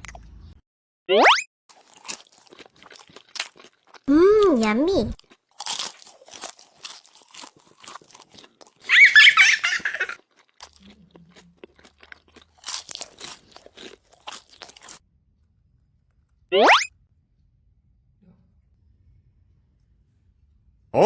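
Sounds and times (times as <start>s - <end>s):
crunchy food being chewed: 1.7s - 16.4s.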